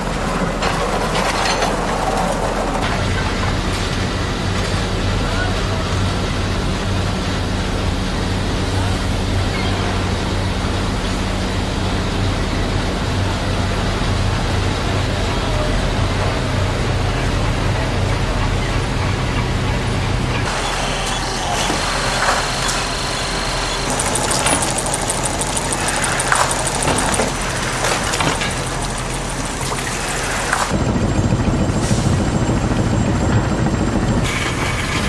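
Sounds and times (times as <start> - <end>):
textile machinery droning: 2.4 - 35.0
rapid machine clattering: 23.9 - 30.8, 34.2 - 35.0.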